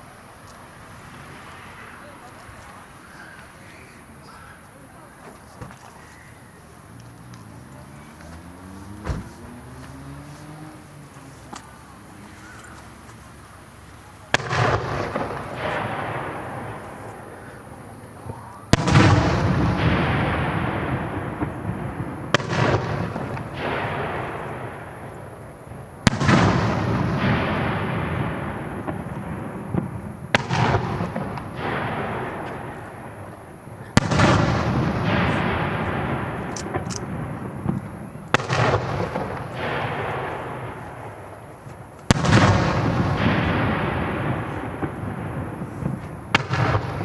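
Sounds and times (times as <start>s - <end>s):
rolling echo: 0.7s - 47.0s
firework shells bursting: 14.3s - 47.0s.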